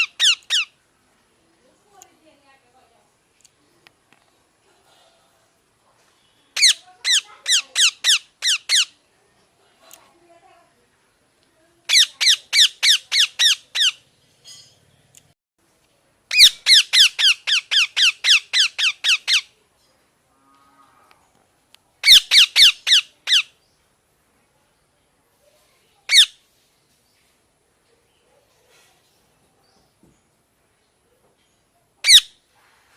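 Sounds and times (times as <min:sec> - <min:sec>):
parrot squawking: 0:00.0 - 0:00.7, 0:06.6 - 0:09.0, 0:11.9 - 0:14.0, 0:16.3 - 0:19.5, 0:22.0 - 0:23.5, 0:26.1 - 0:26.4, 0:32.0 - 0:32.4.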